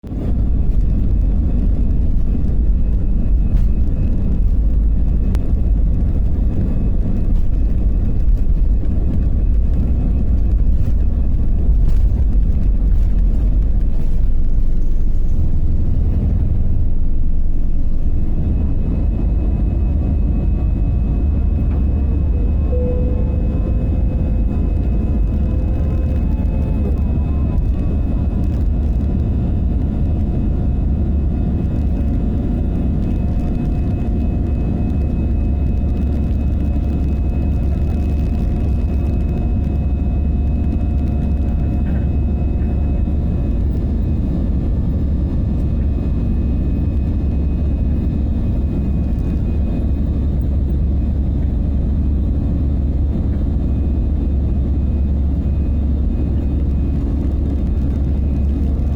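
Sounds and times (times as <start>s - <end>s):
airplane engines rumbling: 0.0s - 58.9s
thin whining tones: 18.5s - 29.8s.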